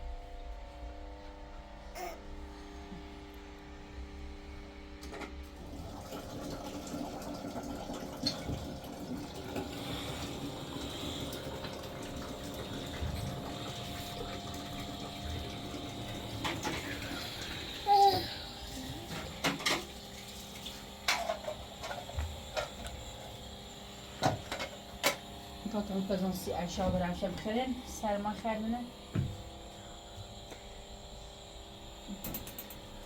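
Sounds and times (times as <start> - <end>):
water running: 5.6 - 29.3.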